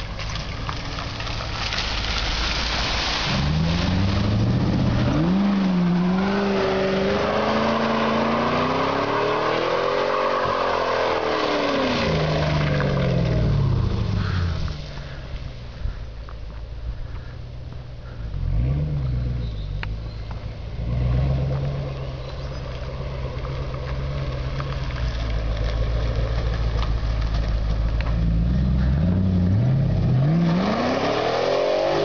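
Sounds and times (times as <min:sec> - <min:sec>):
car engine revving hard: 0:03.3 - 0:14.6, 0:28.7 - 0:32.0.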